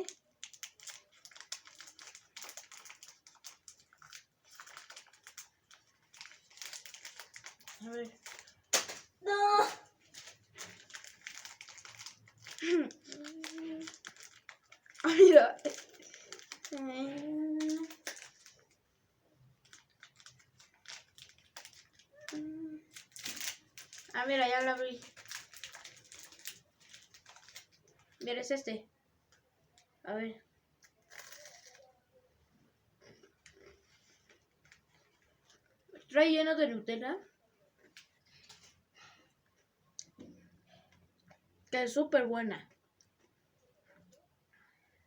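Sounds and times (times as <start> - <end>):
faint crisp wafer crackling: 0.0 - 9.2, 9.8 - 30.0, 30.6 - 36.1, 37.2 - 41.7
plastic wrapper crinkling: 0.0 - 9.2, 9.8 - 28.3, 30.8 - 32.0, 33.1 - 35.9.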